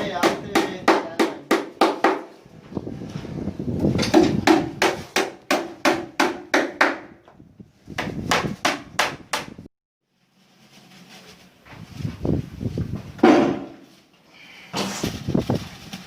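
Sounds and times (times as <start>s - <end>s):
hammering on wood: 0.0s - 2.3s, 4.0s - 7.2s, 8.0s - 9.6s.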